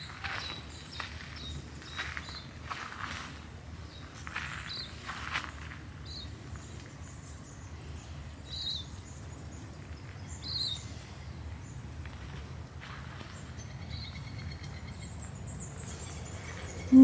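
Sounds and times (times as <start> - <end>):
bird chirps: 15.9 - 17.0.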